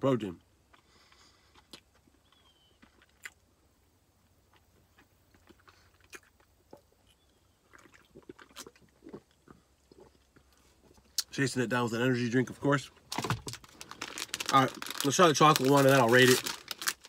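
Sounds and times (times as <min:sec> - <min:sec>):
chewing mouth sounds: 0:04.5 - 0:11.3
swallowing: 0:05.3 - 0:10.6.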